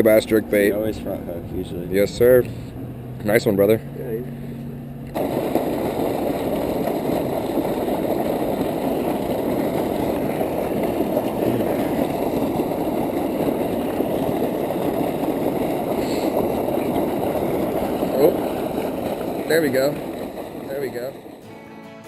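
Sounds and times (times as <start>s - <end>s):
canal water rushing: 5.1s - 21.6s.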